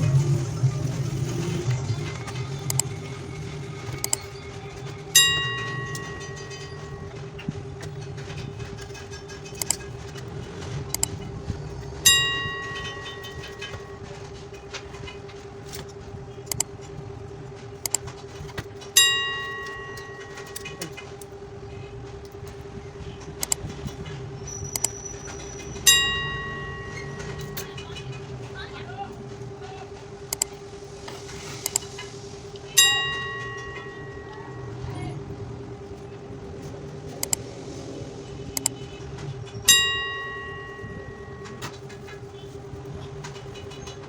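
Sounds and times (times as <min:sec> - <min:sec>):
steady hum: 0:00.0 - 0:44.0
bright ringing ding: 0:05.1 - 0:07.2, 0:12.0 - 0:14.1, 0:19.0 - 0:21.0, 0:25.8 - 0:28.0, 0:32.8 - 0:35.2, 0:39.7 - 0:41.9.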